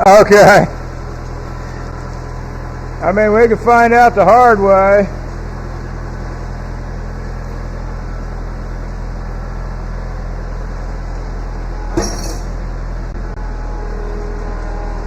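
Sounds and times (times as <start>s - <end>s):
tractor engine idling: 0.0s - 13.2s
sharp metallic knock: 12.0s - 12.6s.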